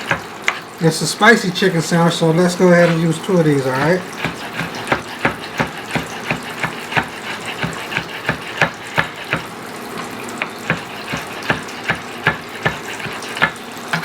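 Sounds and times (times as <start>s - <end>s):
knife chopping on cutting board: 0.0s - 0.6s, 3.6s - 9.5s, 10.4s - 14.0s.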